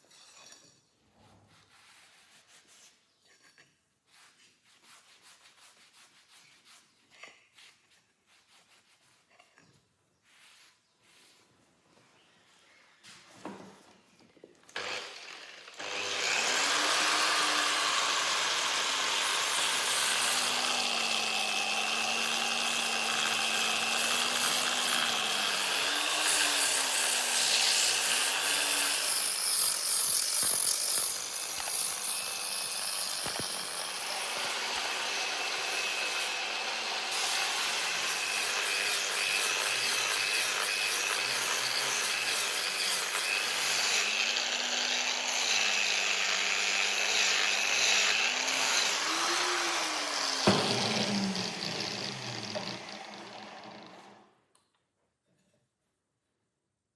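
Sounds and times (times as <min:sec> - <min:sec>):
power tool running: 0:14.7 - 0:54.3.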